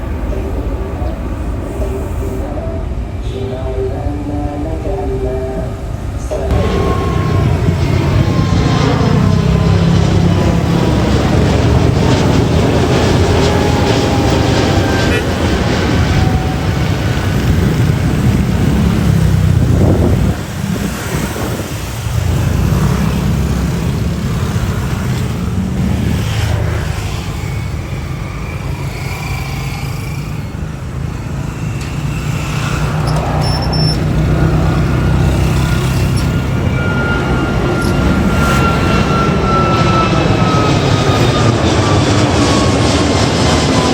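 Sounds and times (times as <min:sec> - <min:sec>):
jet engines roaring: 0:00.0 - 0:43.9
thin high whine: 0:20.1 - 0:42.8.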